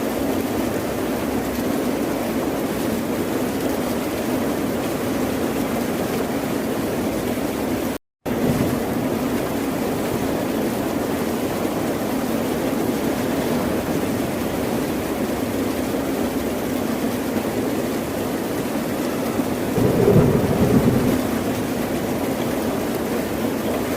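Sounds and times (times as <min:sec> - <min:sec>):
ocean surf rushing: 0:19.7 - 0:22.9.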